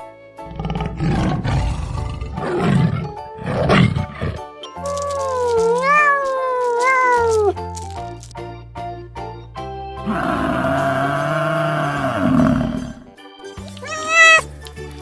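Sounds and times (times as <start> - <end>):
background music: 0.0 - 15.0
animal making rough low calls: 0.4 - 5.7, 10.1 - 13.0.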